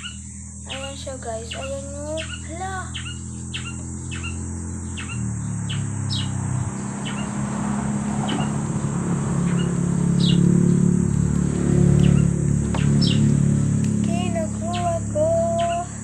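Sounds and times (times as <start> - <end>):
bird chirping: 0.0 - 7.5, 8.2 - 11.3, 11.9 - 16.0
high insect drone: 0.0 - 16.0
steady low hum: 0.0 - 16.0.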